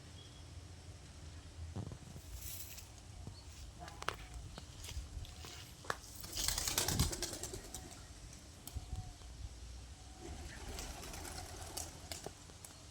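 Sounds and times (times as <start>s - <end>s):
wings flapping: 6.0s - 8.4s, 10.2s - 12.4s
doves cooing softly: 6.3s - 12.5s.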